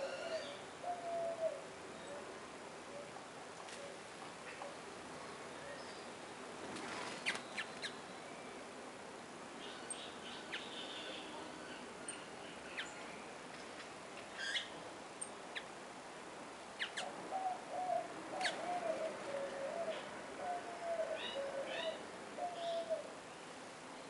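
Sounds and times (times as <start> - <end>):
garden background hiss: 0.0 - 24.0
small birds chirping: 6.9 - 8.6, 9.6 - 15.8, 16.8 - 17.5, 18.4 - 23.5.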